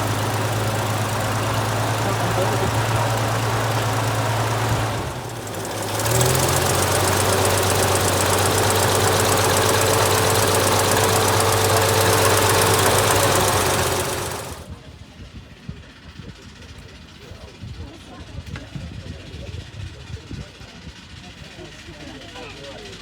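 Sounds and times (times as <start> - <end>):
military vehicle engine running: 0.0 - 15.1.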